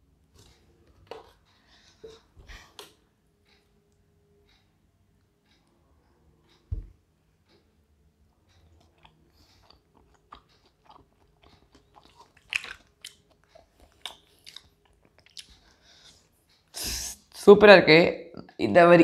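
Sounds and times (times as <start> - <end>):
person chewing crispy food: 8.8 - 16.2.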